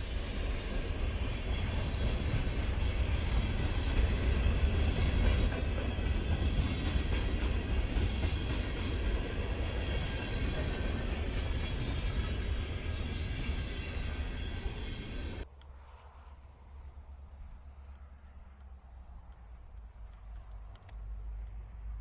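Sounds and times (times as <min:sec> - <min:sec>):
diesel train rumbling past: 0:00.0 - 0:18.6.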